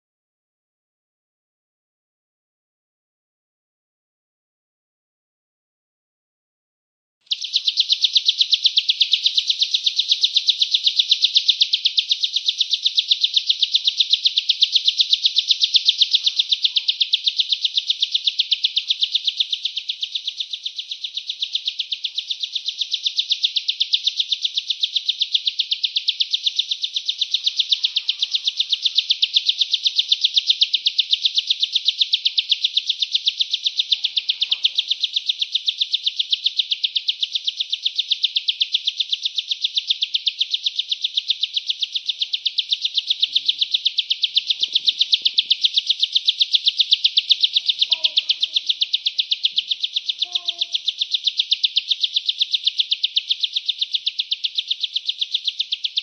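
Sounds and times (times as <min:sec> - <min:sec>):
bird chirping rapidly: 0:07.2 - 0:56.0.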